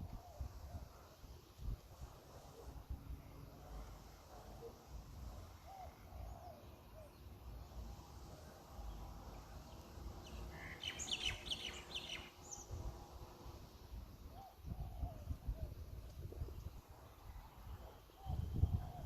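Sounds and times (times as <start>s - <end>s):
bird chirping: 8.9s - 12.8s.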